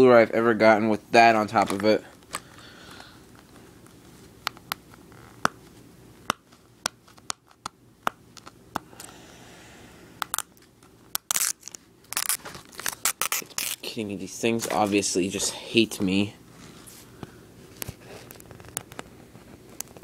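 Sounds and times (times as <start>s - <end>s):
plastic crinkling: 11.2s - 14.0s, 17.7s - 20.0s.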